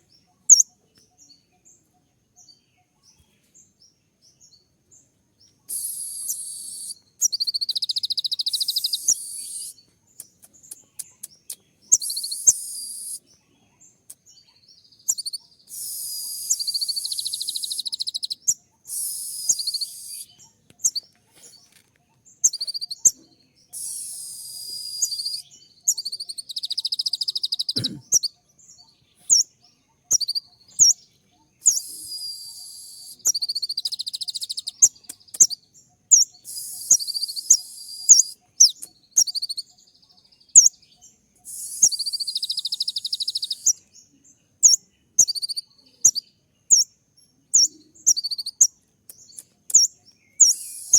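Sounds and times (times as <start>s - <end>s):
bird singing rapid trills: 0.0s - 50.9s
bird chips: 5.7s - 13.3s, 14.0s - 31.0s, 31.6s - 39.7s, 41.4s - 43.8s, 47.6s - 50.9s.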